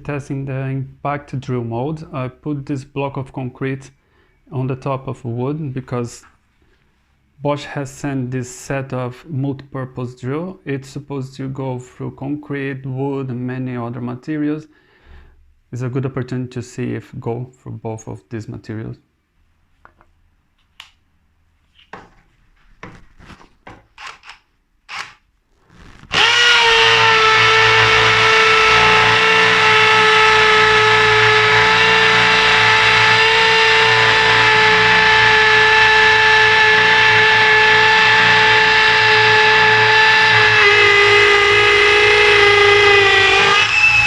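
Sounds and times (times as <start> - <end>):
hammer drill drilling into concrete: 24.0 - 25.2, 26.0 - 44.0.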